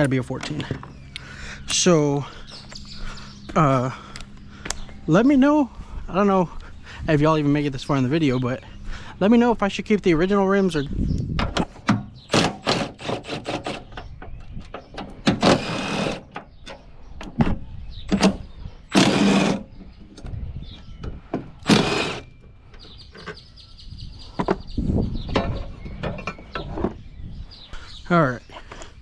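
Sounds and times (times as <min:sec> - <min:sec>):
tool clicks and knocks: 0:11.4 - 0:20.3, 0:21.0 - 0:23.4.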